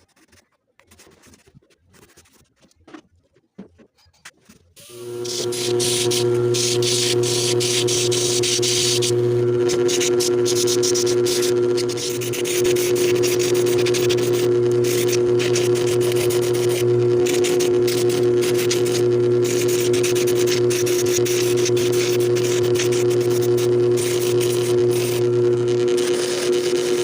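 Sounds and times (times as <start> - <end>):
shoe sole grinding hiss: 4.8 - 25.2
sanding machine motor hum: 4.8 - 27.0.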